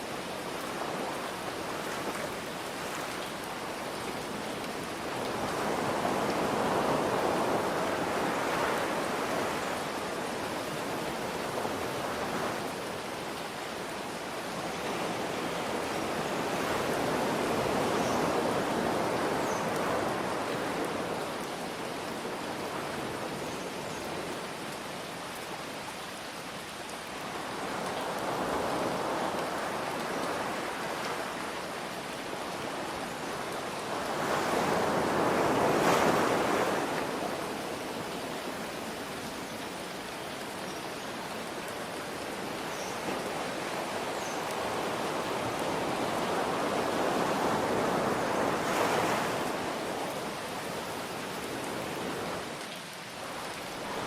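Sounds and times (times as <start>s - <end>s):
rain hiss: 0.0s - 54.0s
ocean waves washing in: 43.5s - 54.0s.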